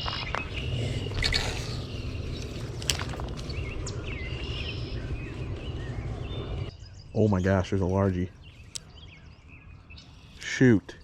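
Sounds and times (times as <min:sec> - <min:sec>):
steady low rumble: 0:00.0 - 0:10.3
birds calling: 0:00.0 - 0:11.0
sharp clicks or rustles: 0:02.4 - 0:03.6.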